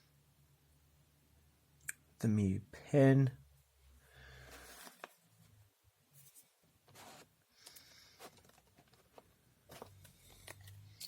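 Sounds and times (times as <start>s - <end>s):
cardboard and cards rustling: 4.5s - 5.3s, 6.2s - 11.0s.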